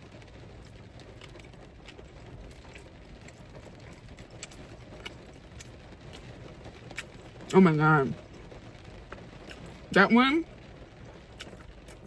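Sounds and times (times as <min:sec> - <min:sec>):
person chewing food: 0:00.6 - 0:07.3, 0:09.4 - 0:09.8, 0:11.4 - 0:12.0.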